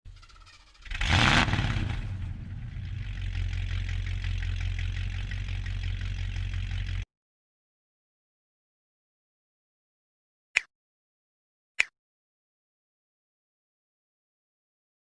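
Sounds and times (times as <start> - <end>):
diesel bus engine starting and idling: 0.9 - 7.0.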